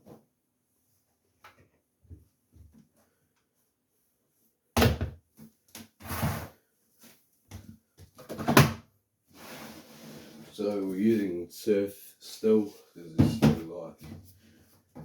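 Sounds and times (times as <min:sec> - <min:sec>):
washing machine knocks and bangs: 0:13.2 - 0:13.7.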